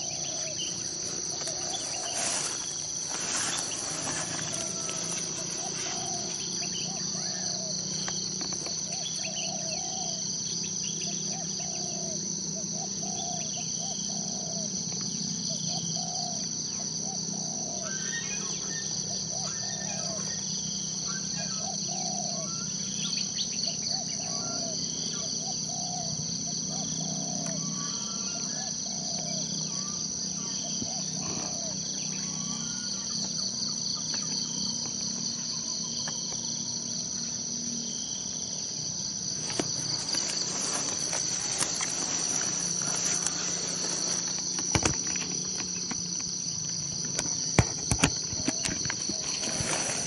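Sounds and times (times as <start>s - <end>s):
birds chirping: 0.0s - 12.0s, 39.2s - 50.0s
insects droning: 0.0s - 50.0s.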